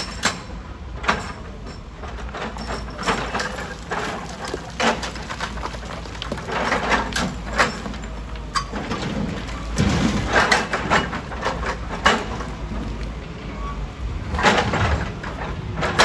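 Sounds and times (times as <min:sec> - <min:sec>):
stone knocking and clattering: 0:02.6 - 0:13.2.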